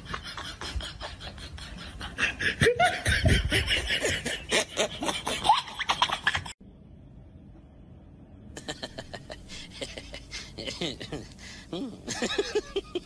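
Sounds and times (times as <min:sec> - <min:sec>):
person laughing: 0:00.0 - 0:06.5, 0:08.6 - 0:13.0.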